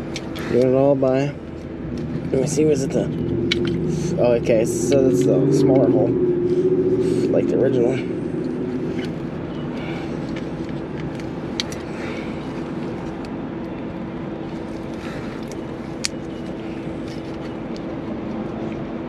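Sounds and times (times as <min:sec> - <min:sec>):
low hum of shop: 0:00.0 - 0:19.0
sharp clicks of metal parts: 0:10.3 - 0:11.9.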